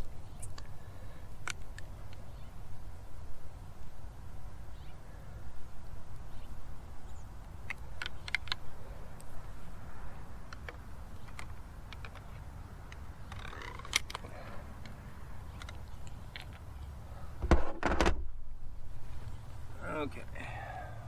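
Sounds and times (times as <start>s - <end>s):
clicks and rattles of equipment: 7.6s - 9.3s, 10.5s - 18.2s
steady low rumble: 14.0s - 21.0s.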